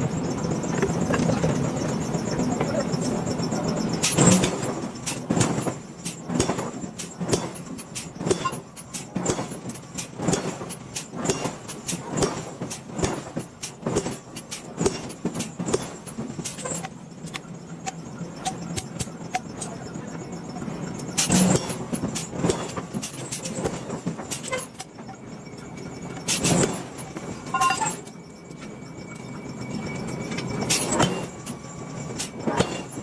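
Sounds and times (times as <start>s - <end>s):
machine hum: 0.0s - 6.9s.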